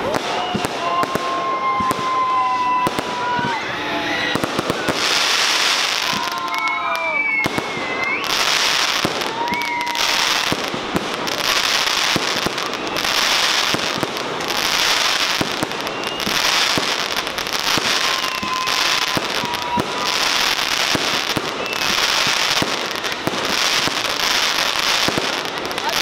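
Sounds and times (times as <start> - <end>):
fireworks bangs and crackles: 0.0 - 26.0
fireworks hissing crackle: 0.0 - 26.0
faint whistle: 6.1 - 10.2, 12.3 - 13.4, 15.4 - 16.8, 17.8 - 20.2, 21.4 - 22.5.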